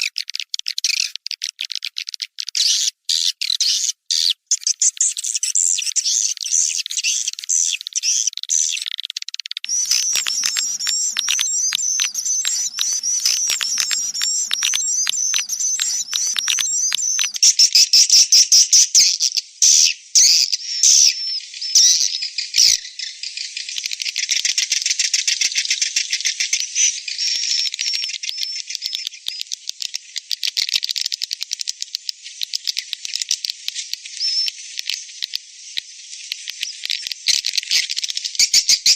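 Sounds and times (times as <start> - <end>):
swiftlet chirping twitter: 9.7 - 17.4.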